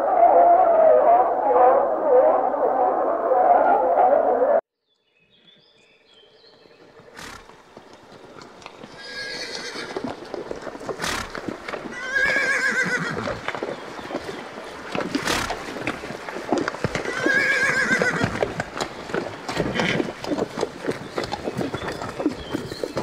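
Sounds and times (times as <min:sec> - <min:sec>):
hooves clattering on stony ground: 0:05.3 - 0:23.0
horse whinnying: 0:07.2 - 0:07.5, 0:09.0 - 0:10.2, 0:10.9 - 0:13.5, 0:15.1 - 0:15.7, 0:16.9 - 0:18.7, 0:19.5 - 0:20.4.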